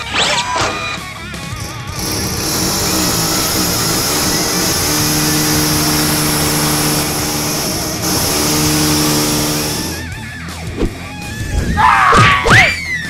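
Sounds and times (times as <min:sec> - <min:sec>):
motor running with loud hiss: 0:01.6 - 0:10.1.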